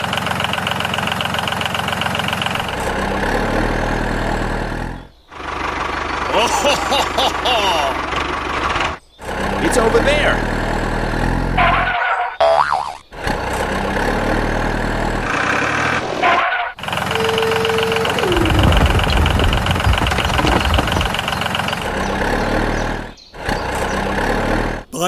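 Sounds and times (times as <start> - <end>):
vehicle engine running: 0.0 - 6.8, 7.6 - 11.9, 16.8 - 25.0
low rumble with rapid ticking: 16.9 - 22.4.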